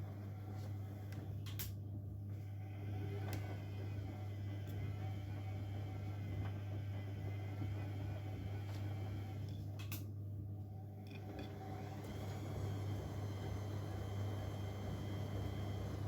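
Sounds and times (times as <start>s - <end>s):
washing machine running: 0.0s - 16.0s.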